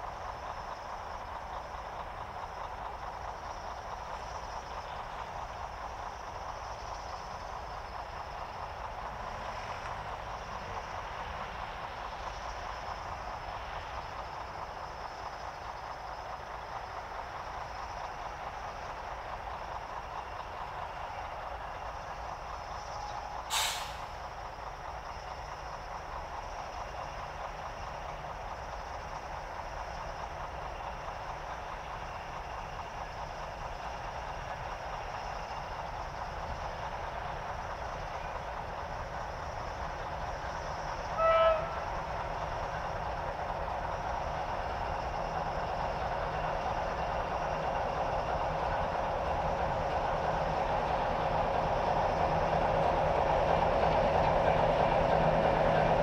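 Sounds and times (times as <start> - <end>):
diesel train rumble: 0.0 - 56.0
train horn toot: 41.0 - 42.0.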